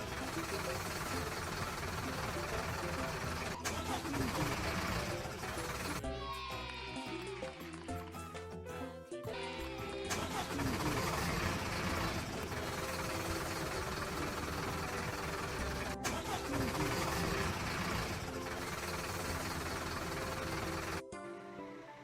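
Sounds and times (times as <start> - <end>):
construction vehicle engine running: 0.0 - 6.2, 9.9 - 21.1.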